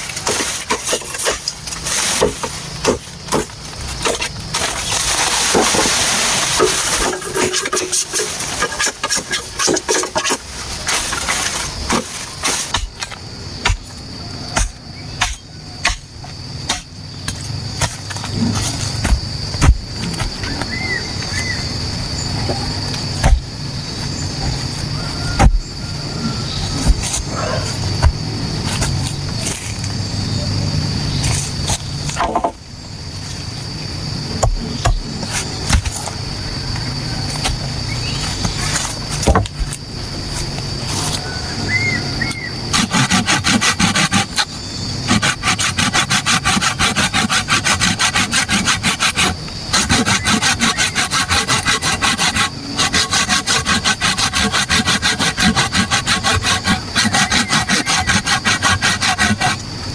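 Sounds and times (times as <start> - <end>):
tools knocking and tapping bamboo: 6.5 - 18.3
sharp knocks of tool on bamboo: 14.6 - 16.1.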